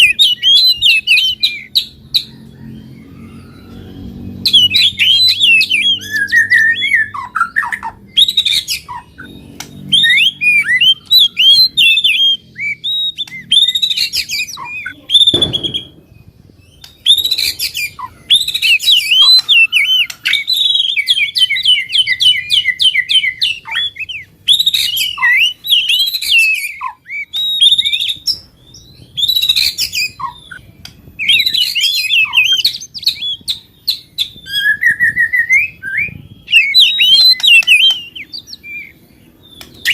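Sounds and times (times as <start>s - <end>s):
songbirds singing: 0.0s - 39.9s
low thump: 15.3s - 16.1s.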